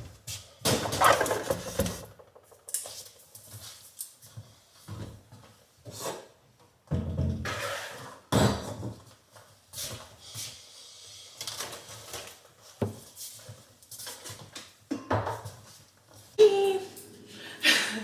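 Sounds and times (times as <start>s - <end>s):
objects knocking and clattering: 0.7s - 3.5s.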